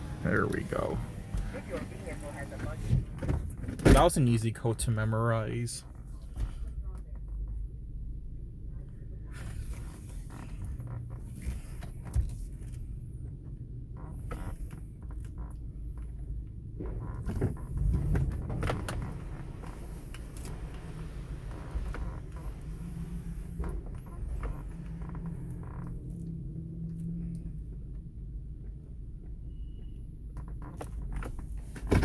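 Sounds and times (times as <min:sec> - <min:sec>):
car engine idling: 0:00.0 - 0:11.7.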